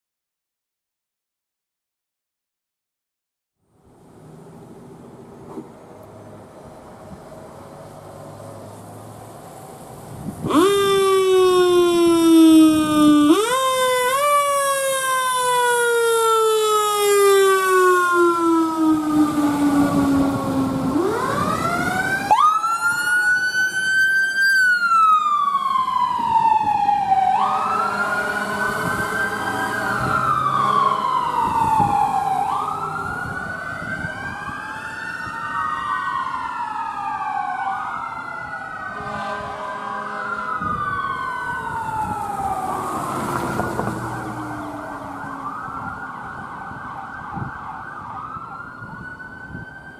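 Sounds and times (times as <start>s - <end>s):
emergency sirens wailing: 10.0s - 49.9s
deep siren tone gliding down: 10.4s - 49.9s.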